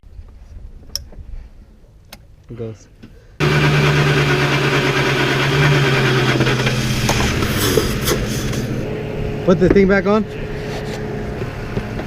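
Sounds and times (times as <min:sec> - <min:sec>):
car engine running: 0:03.4 - 0:12.0.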